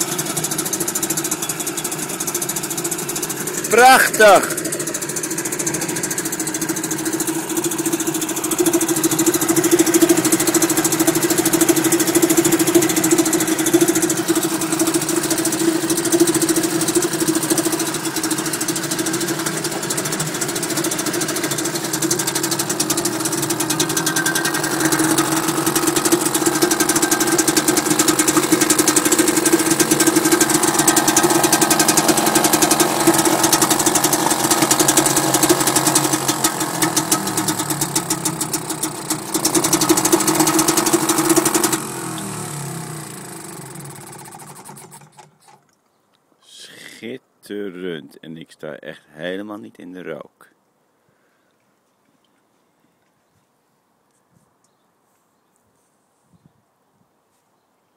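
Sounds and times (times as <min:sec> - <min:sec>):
outboard motor running: 0:00.0 - 0:45.6.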